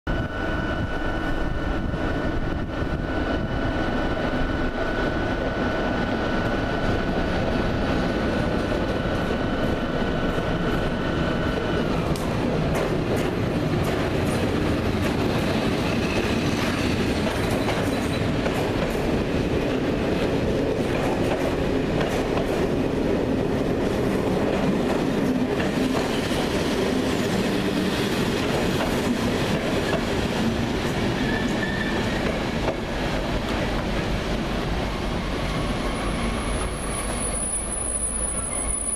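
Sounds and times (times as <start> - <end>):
train wheels rumbling on rails: 0.1 - 38.9
faint high wheel squeals: 35.9 - 38.9.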